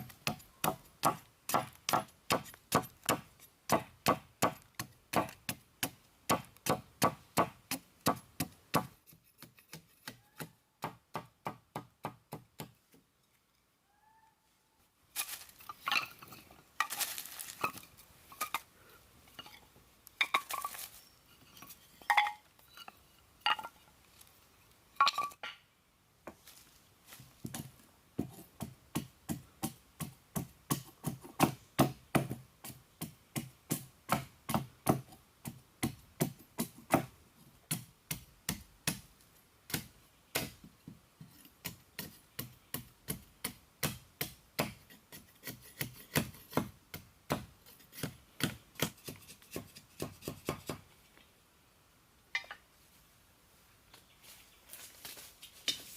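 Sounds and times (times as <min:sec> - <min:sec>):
knocks and clinks: 0:21.5 - 0:23.8.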